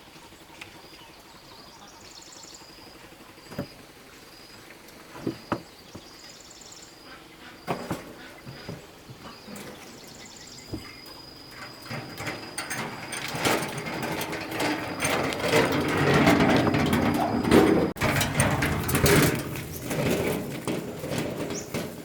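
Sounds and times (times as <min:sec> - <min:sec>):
rough scraping and clattering: 0:07.7 - 0:22.0.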